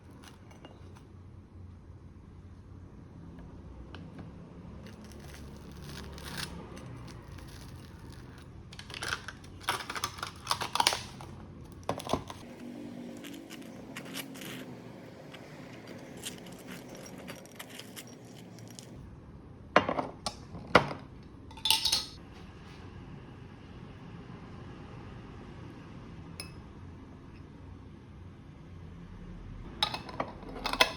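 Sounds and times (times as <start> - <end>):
small hard objects clinking: 15.8 - 19.0.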